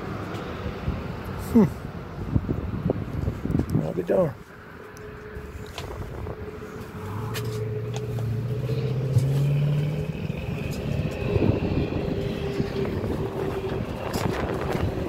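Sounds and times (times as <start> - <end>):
vehicle engine speeding up: 4.8 - 15.0.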